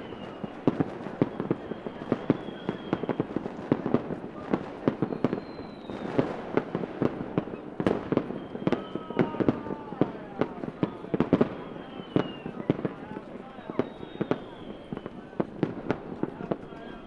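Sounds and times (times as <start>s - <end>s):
faint thin whistles: 0.0s - 3.3s, 4.9s - 6.3s, 7.4s - 9.4s, 10.8s - 12.8s, 13.6s - 15.3s
fireworks bangs and pops: 0.0s - 17.0s
fireworks crackle: 0.0s - 17.0s.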